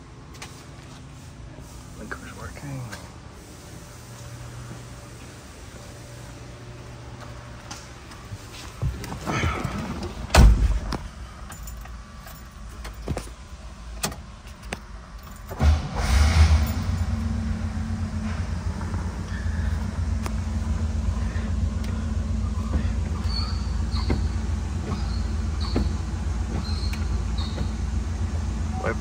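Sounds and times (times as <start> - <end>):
car door shutting: 8.8 - 11.1, 22.6 - 27.9
car engine starting and running: 8.8 - 29.0
keys jingling: 11.2 - 15.6.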